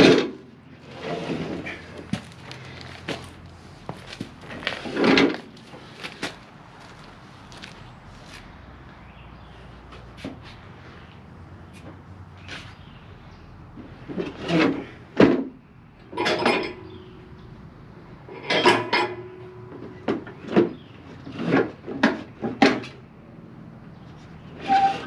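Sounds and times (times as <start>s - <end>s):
metal parts and tools clanking: 16.1s - 17.2s, 18.3s - 20.7s.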